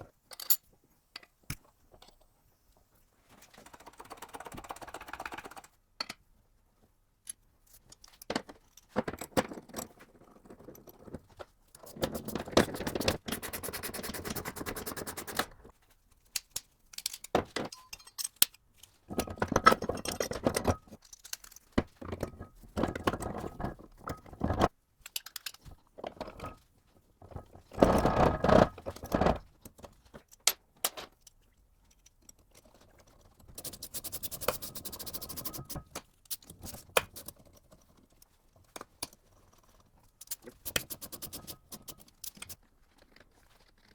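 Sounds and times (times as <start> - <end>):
metal parts clinking: 16.4 - 21.8.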